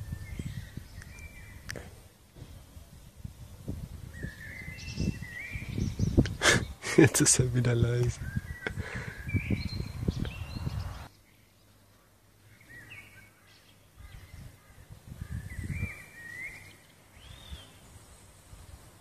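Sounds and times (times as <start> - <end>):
wind rumbling on microphone: 0.0 - 11.1, 14.0 - 16.6, 17.2 - 19.0
small birds chirping: 0.0 - 19.0.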